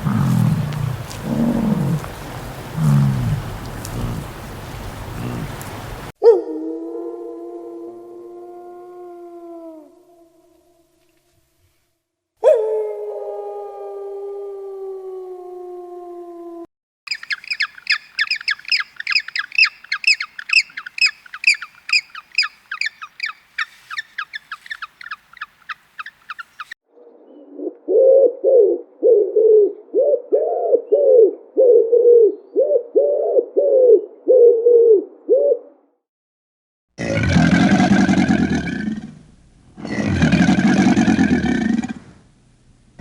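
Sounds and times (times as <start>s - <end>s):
lower bird call: 0.0s - 6.1s, 17.1s - 29.2s
bird chirping rapidly: 17.1s - 26.8s.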